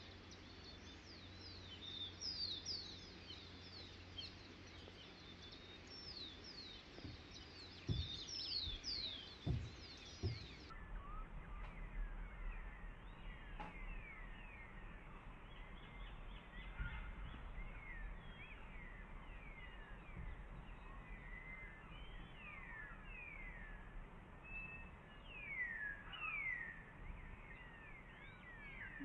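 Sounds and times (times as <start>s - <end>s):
birds calling: 0.0s - 29.0s
low rumble: 6.0s - 25.5s.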